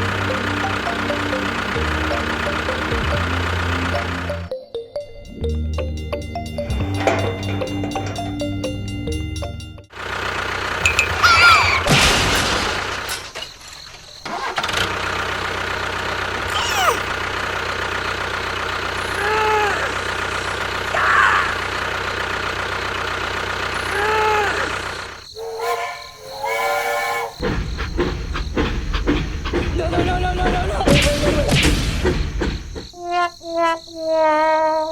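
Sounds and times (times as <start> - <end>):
engine running: 0.0 - 25.3, 27.4 - 32.9
short squeaky calls: 10.9 - 11.9, 16.4 - 17.2, 23.8 - 27.5.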